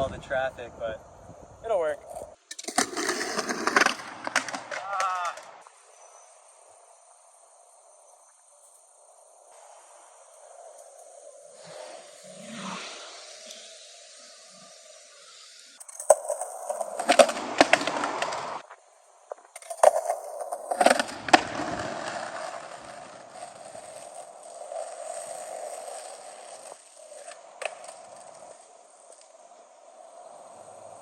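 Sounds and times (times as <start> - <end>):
skateboard wheels rolling: 1.9 - 31.0
skateboard clacks and grinding: 2.5 - 5.6, 15.8 - 18.6, 19.6 - 29.2.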